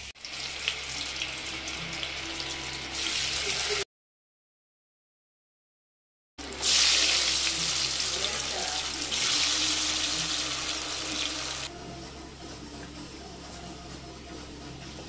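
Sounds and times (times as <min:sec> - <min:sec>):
potato slices frying in oil: 0:00.0 - 0:03.8, 0:06.4 - 0:11.7.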